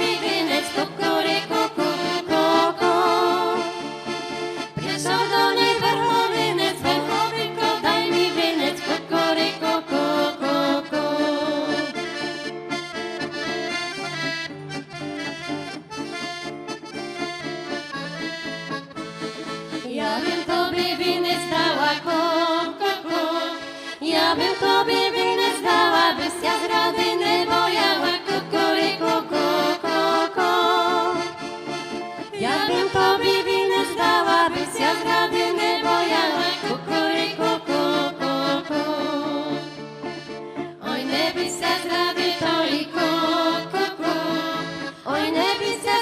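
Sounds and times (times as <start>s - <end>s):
accordion-led folk band: 0.0s - 46.0s.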